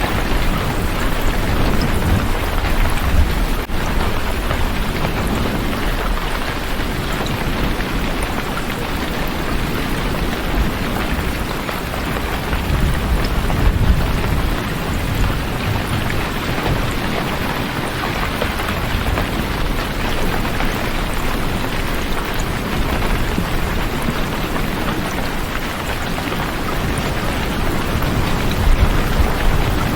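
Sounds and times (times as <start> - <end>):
low rumble of thunder: 0.0 - 29.9
steady rain falling: 0.0 - 29.9.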